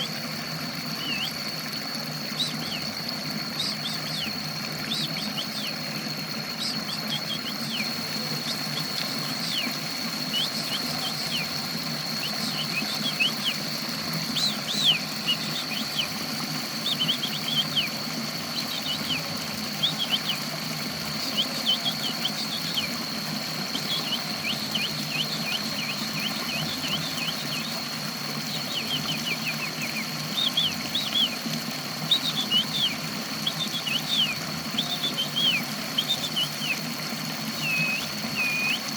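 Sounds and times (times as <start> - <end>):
mechanical hum: 0.0 - 38.9
songbird chirping: 6.5 - 20.5, 23.6 - 36.8.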